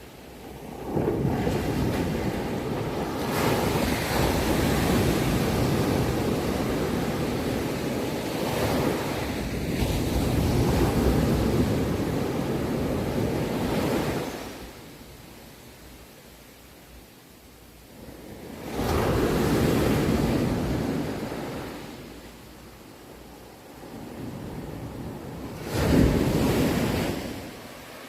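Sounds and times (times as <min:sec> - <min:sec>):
sea waves breaking on shore: 0:00.0 - 0:14.8, 0:18.2 - 0:22.3, 0:23.7 - 0:28.0.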